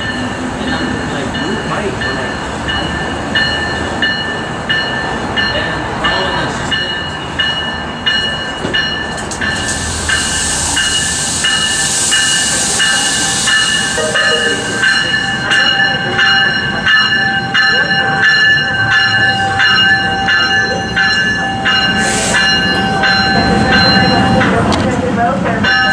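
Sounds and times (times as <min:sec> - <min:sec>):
bell dinging: 0:00.0 - 0:24.6
train rumbling and hissing: 0:00.0 - 0:25.9.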